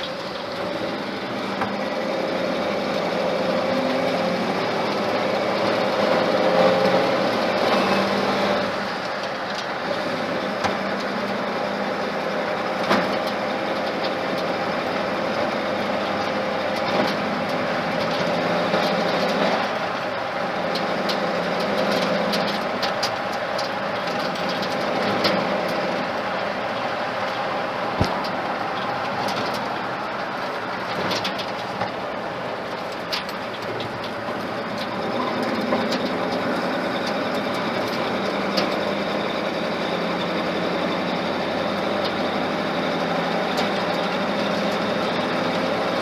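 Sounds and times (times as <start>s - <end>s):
sharp engine clicks and knocks: 0.0s - 46.0s
truck engine running: 0.0s - 46.0s.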